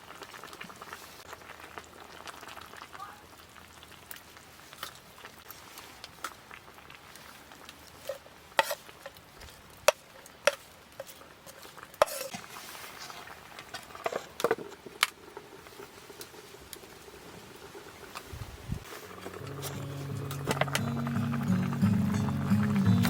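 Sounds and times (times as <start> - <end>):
utensils clinking against a pot: 8.0 - 9.2, 9.9 - 12.4, 19.0 - 23.0.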